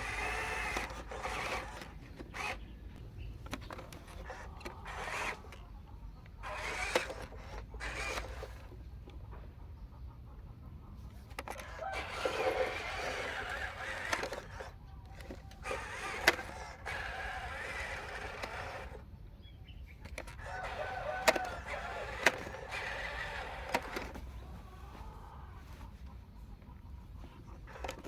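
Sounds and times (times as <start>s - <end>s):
toy electric motors running: 0.0s - 8.9s, 11.1s - 19.1s, 20.0s - 25.2s, 27.3s - 28.0s
sharp clicks: 3.4s - 8.7s, 11.3s - 19.0s, 20.0s - 24.2s.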